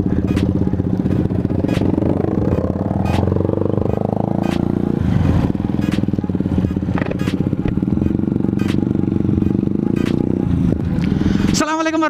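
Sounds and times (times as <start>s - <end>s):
motorcycle engine revving: 0.0s - 11.8s
short clicks: 4.4s - 4.7s, 8.6s - 8.9s.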